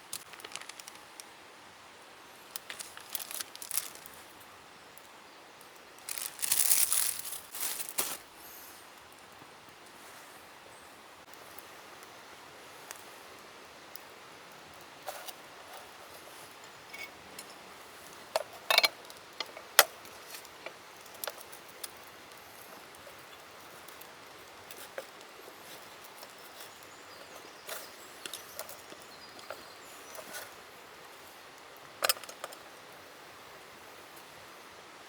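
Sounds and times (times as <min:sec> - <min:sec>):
cooking gear clicks and knocks: 0:18.2 - 0:30.6, 0:32.0 - 0:32.7.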